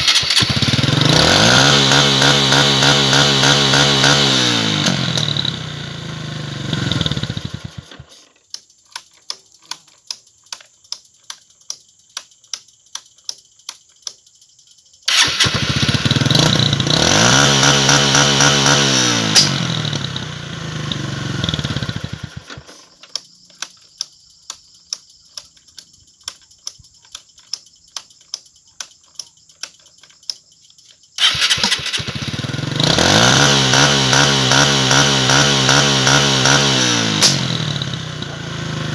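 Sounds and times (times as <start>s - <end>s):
motorcycle engine revving: 0.0s - 8.1s, 15.1s - 22.8s, 31.2s - 38.9s.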